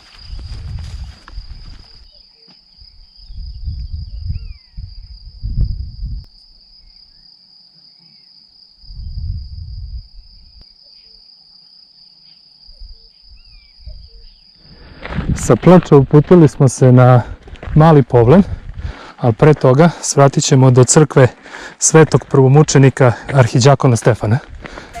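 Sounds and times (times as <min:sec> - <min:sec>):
wind rumble on microphone: 0:00.0 - 0:02.1, 0:02.8 - 0:06.3, 0:08.8 - 0:10.6, 0:12.7 - 0:16.4, 0:17.2 - 0:19.0
high-pitched insect trill: 0:00.0 - 0:15.0
bird chirping: 0:01.9 - 0:04.8, 0:12.3 - 0:14.6.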